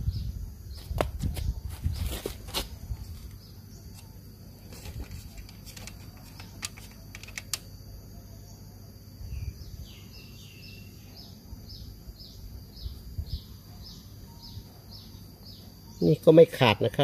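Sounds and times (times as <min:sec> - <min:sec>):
sharp clicks: 0:05.4 - 0:07.7
bird chirping: 0:08.2 - 0:17.0.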